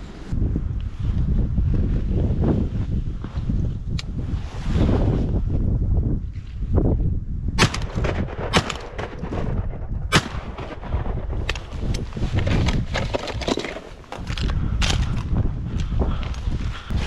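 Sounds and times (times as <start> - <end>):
shotgun shots: 7.6 - 11.6.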